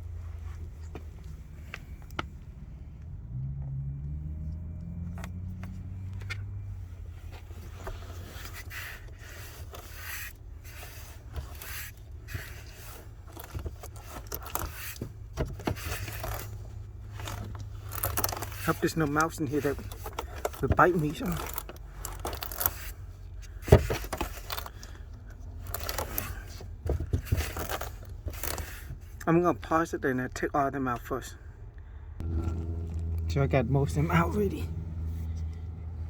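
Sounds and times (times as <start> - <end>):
dry rustling and scraping: 7.1 - 29.2, 32.2 - 33.3
steady low hum: 31.5 - 36.0.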